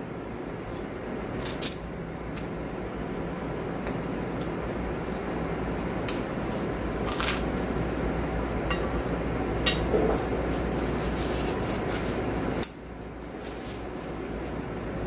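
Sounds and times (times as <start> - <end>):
room hum: 0.0 - 15.0
cutlery clinking against dish: 9.7 - 10.2.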